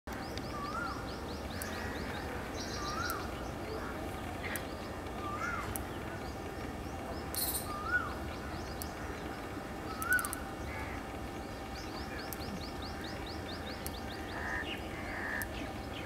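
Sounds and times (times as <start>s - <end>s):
steady background noise: 0.1s - 16.0s
high bird chirps: 7.3s - 8.2s.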